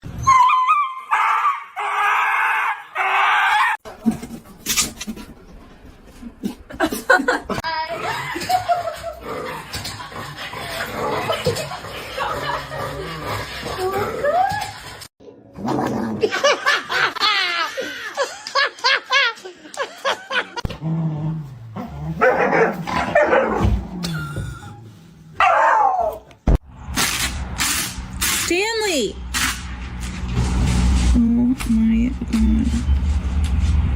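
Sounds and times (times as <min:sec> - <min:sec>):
dog barking and yipping: 0:22.2 - 0:23.7, 0:25.4 - 0:26.3.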